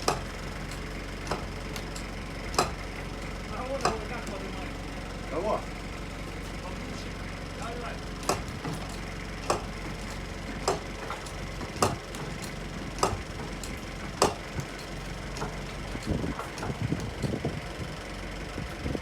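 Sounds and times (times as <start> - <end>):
engine idling: 0.0 - 19.0
sharp clicks: 8.2 - 17.4.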